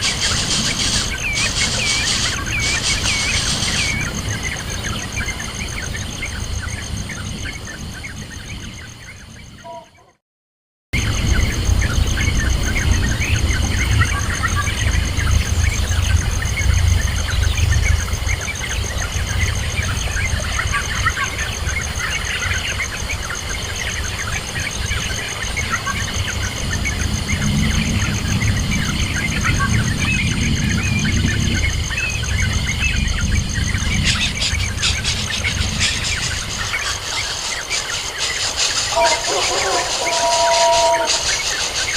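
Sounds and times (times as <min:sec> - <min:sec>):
crackling rustle: 0:00.0 - 0:04.2
high insect-like drone: 0:00.0 - 0:08.1, 0:25.8 - 0:41.9
birds chirping: 0:00.0 - 0:10.2, 0:11.0 - 0:41.9.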